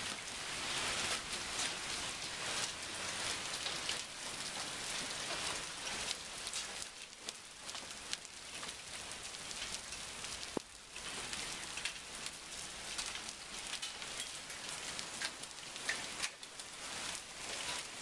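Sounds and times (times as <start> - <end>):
rain drops pattering: 0.0 - 18.0.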